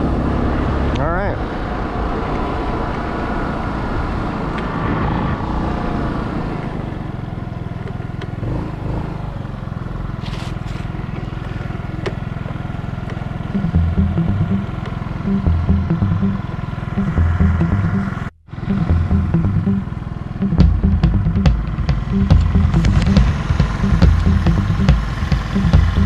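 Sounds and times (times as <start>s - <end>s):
scooter engine running: 0.0s - 26.0s
low rhythmic pulsing: 13.5s - 26.0s.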